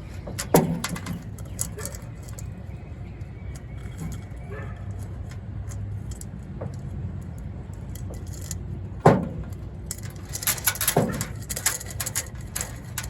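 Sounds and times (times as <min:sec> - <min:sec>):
metal chain clinking: 0:00.0 - 0:02.5, 0:07.3 - 0:13.0.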